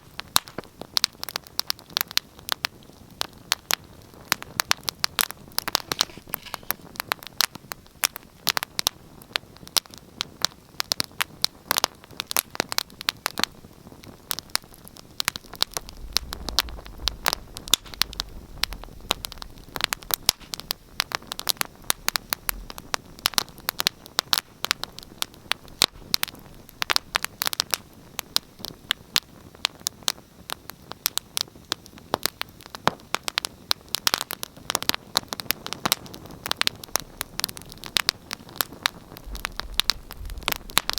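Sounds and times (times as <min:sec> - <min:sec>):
wood fire crackling: 0:00.0 - 0:40.9
low rumble: 0:15.4 - 0:22.8, 0:39.2 - 0:40.9.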